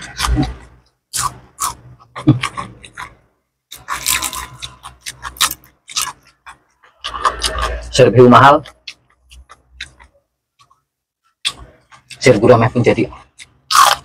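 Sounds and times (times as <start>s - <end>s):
chewing and crunching crispy food: 0.0s - 14.0s.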